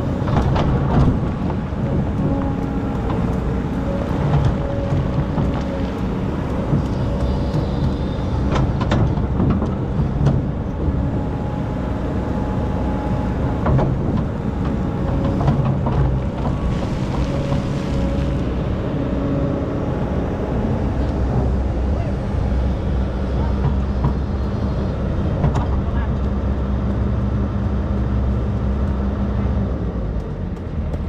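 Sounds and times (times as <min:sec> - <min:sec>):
diesel engine running: 0:00.0 - 0:31.0
hydraulic whine: 0:03.2 - 0:09.7.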